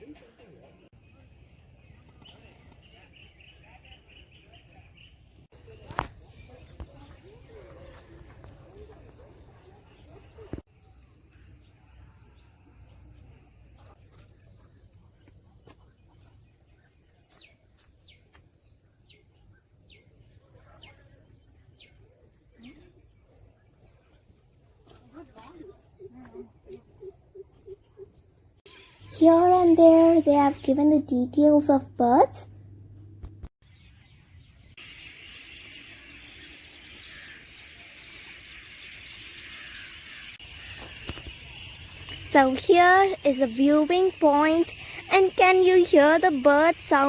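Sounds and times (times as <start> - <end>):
birds chirping and whistling: 19.1 - 29.1.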